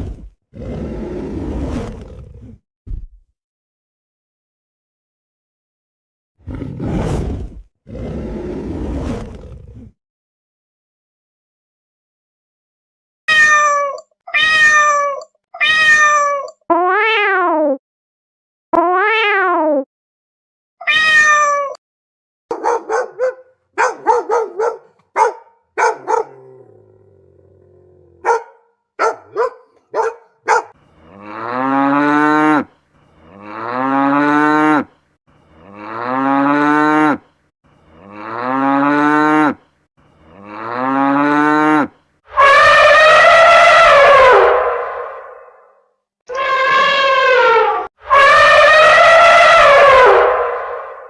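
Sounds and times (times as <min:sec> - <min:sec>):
cat meow: 0:13.3 - 0:17.6, 0:20.8 - 0:21.8
cattle mooing: 0:30.0 - 0:34.8, 0:35.5 - 0:37.2, 0:37.9 - 0:39.6, 0:40.2 - 0:41.9
blaring trumpet-like animal call: 0:40.3 - 0:45.6, 0:46.3 - 0:51.0.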